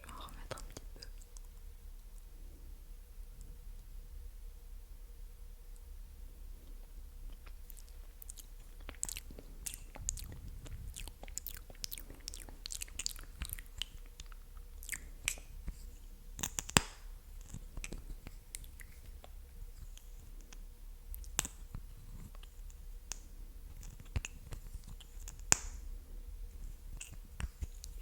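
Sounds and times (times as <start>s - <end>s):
wet mouth clicks and smacks: 7.3s - 15.6s, 16.4s - 21.8s, 22.4s - 25.8s, 26.9s - 28.0s.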